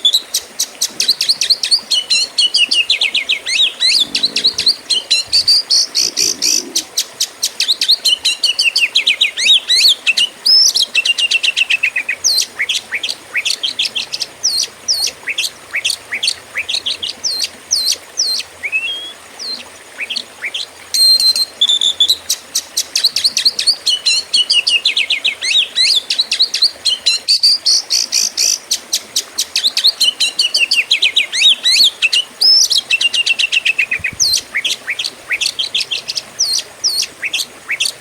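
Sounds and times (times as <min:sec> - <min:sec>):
bird singing: 0:01.1 - 0:06.8.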